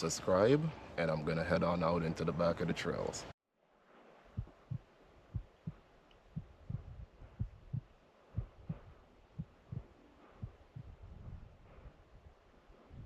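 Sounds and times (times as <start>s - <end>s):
heartbeat thuds: 4.3s - 13.0s.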